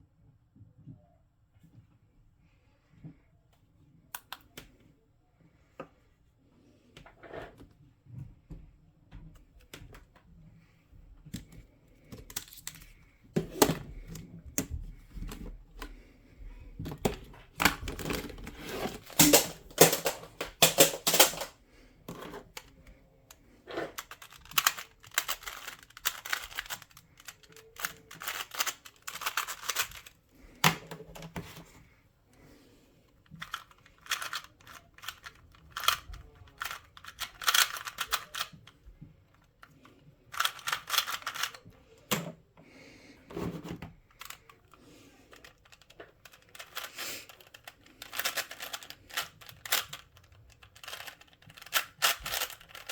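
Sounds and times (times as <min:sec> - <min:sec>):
puzzle cube clicking as twisted: 0:23.9 - 0:30.2, 0:33.4 - 0:38.7, 0:40.3 - 0:41.6, 0:45.3 - 0:52.9.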